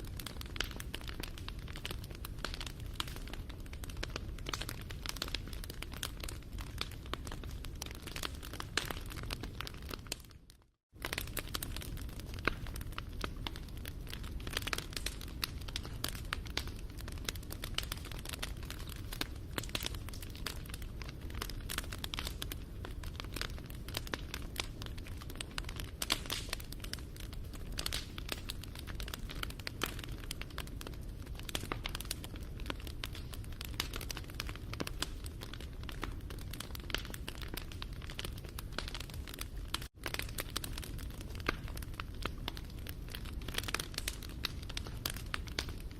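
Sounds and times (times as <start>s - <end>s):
low rumble of burning: 0.0s - 45.9s
wood fire crackling: 0.0s - 45.9s.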